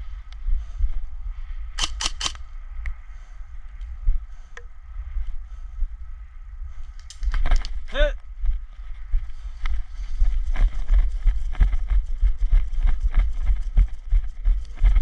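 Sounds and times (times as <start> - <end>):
steady low rumble: 0.0 - 15.0
airsoft gun shots: 1.8 - 2.4.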